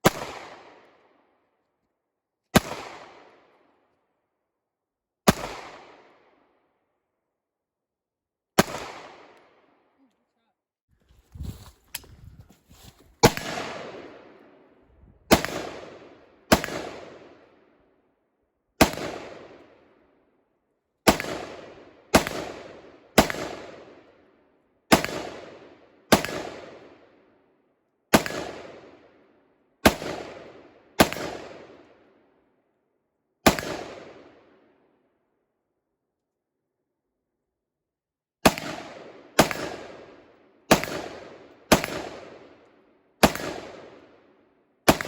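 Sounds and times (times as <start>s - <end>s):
gunshots with echo: 13.2s - 14.3s, 15.3s - 17.2s, 40.7s - 42.4s, 43.2s - 44.0s.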